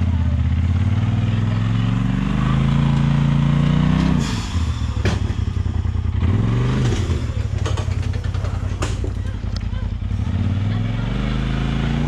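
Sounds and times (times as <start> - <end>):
off-road vehicle engine revving: 0.0 - 12.0
sharp knock: 4.2 - 5.9.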